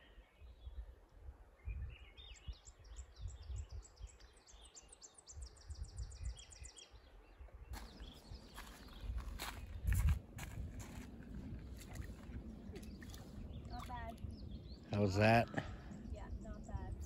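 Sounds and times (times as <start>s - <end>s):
low uneven rumble: 7.9s - 17.0s.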